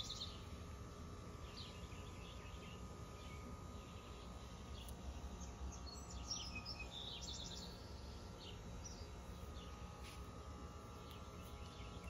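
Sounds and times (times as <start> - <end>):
low steady background rumble: 0.0 - 12.0
songbirds chirping: 0.0 - 12.0.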